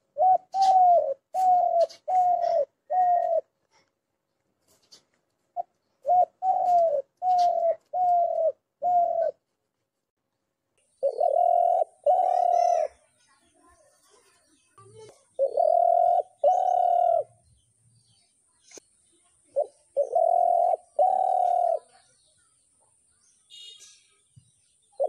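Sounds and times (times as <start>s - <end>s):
dove cooing: 0.0s - 3.5s, 5.6s - 9.4s, 11.0s - 13.0s, 15.4s - 17.4s, 19.4s - 22.0s.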